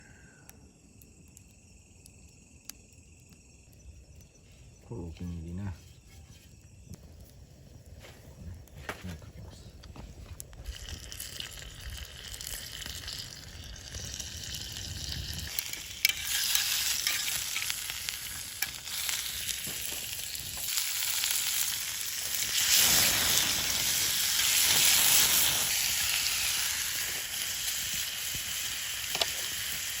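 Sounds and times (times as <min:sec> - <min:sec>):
food sizzling in a hot pan: 0:10.6 - 0:30.0.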